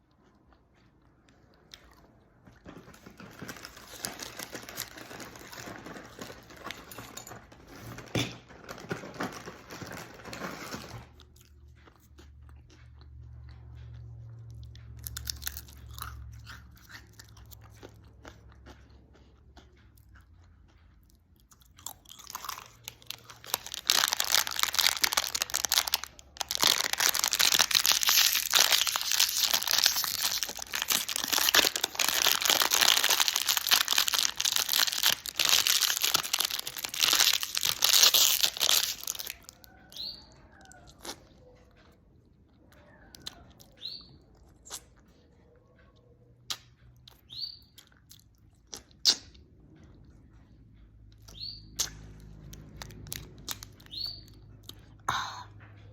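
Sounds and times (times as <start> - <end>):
crunchy chewing of food: 0.0 - 55.9
loud dense crackling: 23.4 - 39.4.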